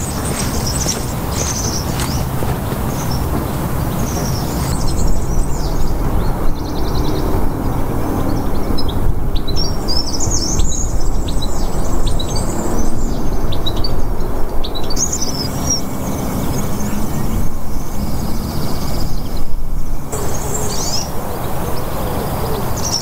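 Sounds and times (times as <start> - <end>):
steady low rumble: 0.0 - 9.8
small birds singing: 0.0 - 23.0.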